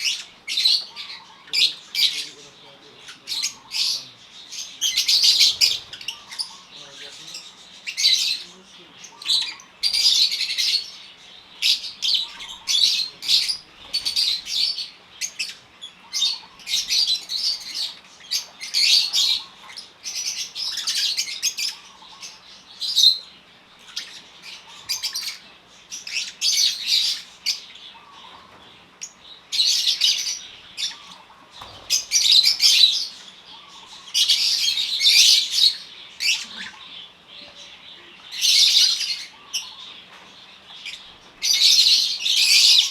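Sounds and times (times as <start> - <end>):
lovebirds chirping and squawking: 0.0 - 42.9.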